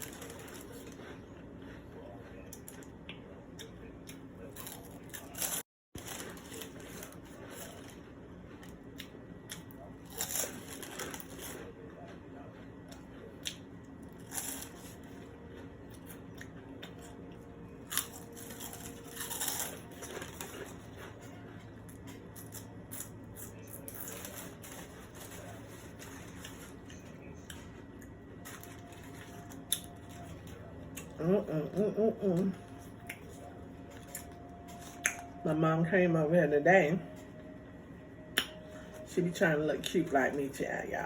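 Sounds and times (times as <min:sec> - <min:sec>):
chewing and mouth noises: 0:00.0 - 0:31.2
food crunching: 0:00.0 - 0:35.5.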